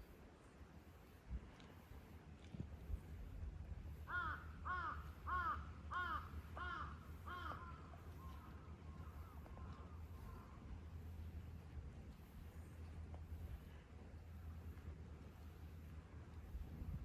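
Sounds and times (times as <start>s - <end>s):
faint bird calls: 4.0s - 11.4s
crow cawing: 4.1s - 7.8s.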